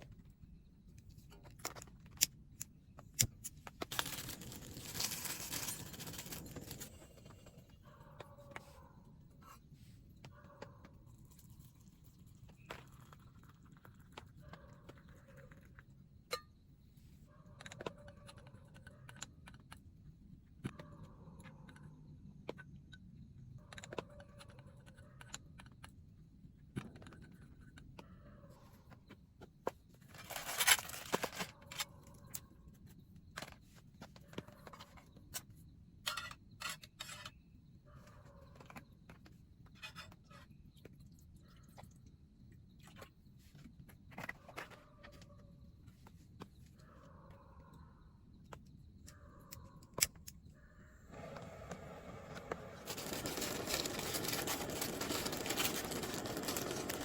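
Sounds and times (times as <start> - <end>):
rustling scrape: 3.9 - 7.3, 51.2 - 57.0.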